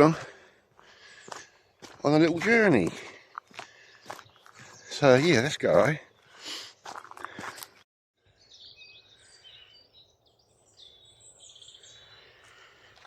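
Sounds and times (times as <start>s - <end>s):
birds chirping and whistling: 3.6s - 13.0s.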